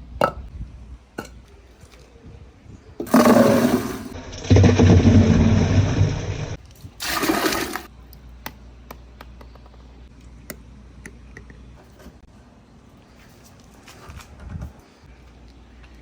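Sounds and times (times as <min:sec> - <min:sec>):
water rushing down a slide: 0:03.0 - 0:07.9.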